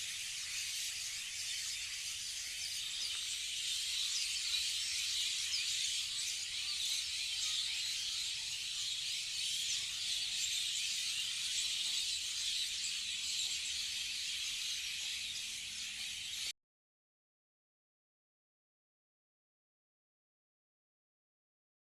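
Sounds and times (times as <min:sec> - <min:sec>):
chorus of birds chirping: 0:00.0 - 0:16.5.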